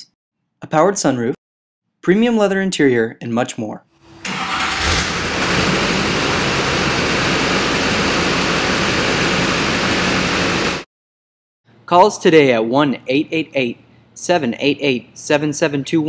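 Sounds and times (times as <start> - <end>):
diesel engine rumbling: 4.1 - 10.8.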